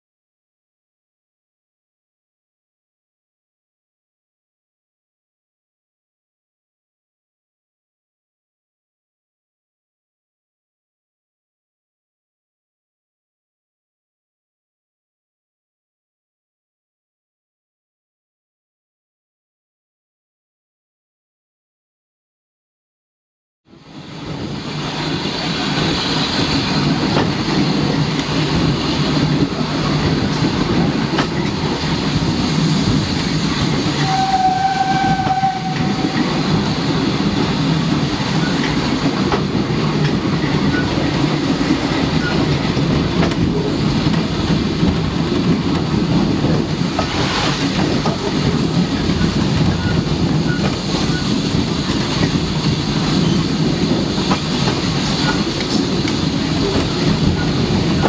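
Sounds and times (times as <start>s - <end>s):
train rumble and wheel clatter: 23.7s - 58.0s
train whistle toot: 34.0s - 36.4s.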